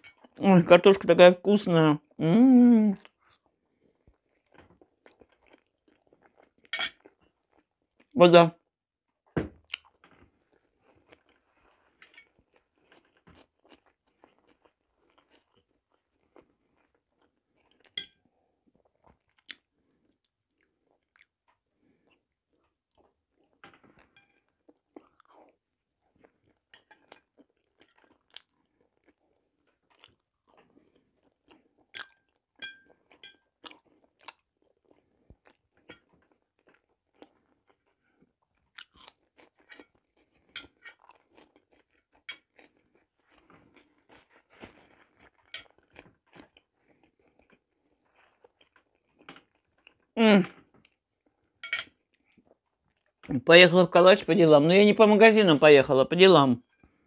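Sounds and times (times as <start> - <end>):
person chewing: 3.0 - 8.1, 9.2 - 53.3
fork clinking on plate: 6.7 - 7.0, 18.0 - 18.2, 32.0 - 33.4, 45.4 - 45.7, 51.6 - 52.0.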